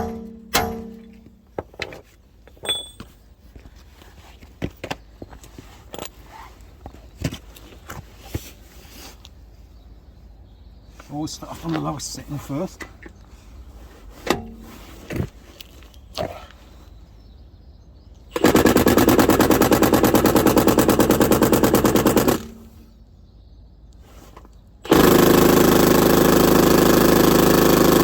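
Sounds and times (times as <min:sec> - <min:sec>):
impact wrench hammering on wheel nut: 0:00.0 - 0:01.3.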